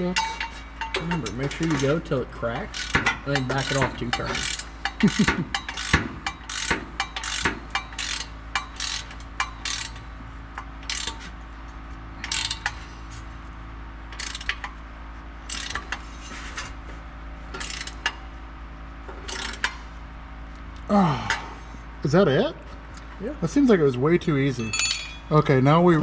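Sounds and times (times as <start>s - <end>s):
ratchet wrench clicking: 2.7s - 10.0s, 10.8s - 11.3s, 12.2s - 12.8s, 14.1s - 14.7s, 15.5s - 15.9s, 17.6s - 18.2s, 19.3s - 19.7s.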